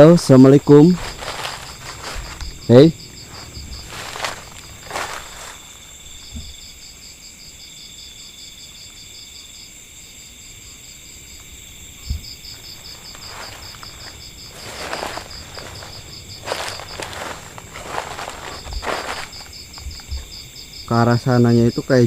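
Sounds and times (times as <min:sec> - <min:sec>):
rustles in undergrowth: 0:00.0 - 0:07.0, 0:12.1 - 0:20.7
crickets chirping: 0:00.0 - 0:22.0
high insect whine: 0:00.0 - 0:22.0.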